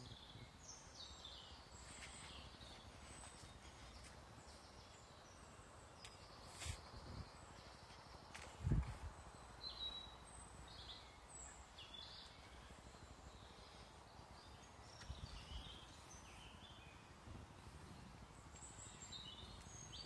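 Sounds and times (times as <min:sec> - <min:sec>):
low outdoor hiss: 0:00.0 - 0:20.0
small birds chirping: 0:00.0 - 0:20.0.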